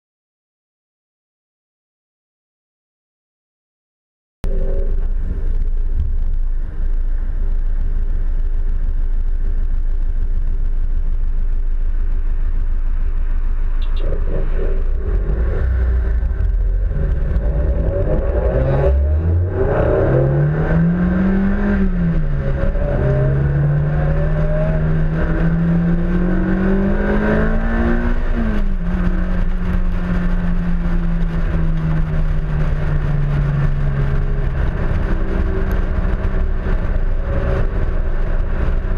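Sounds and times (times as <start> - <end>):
wind rumble on microphone: 4.4 - 38.9
car engine accelerating and upshifting: 13.0 - 38.9.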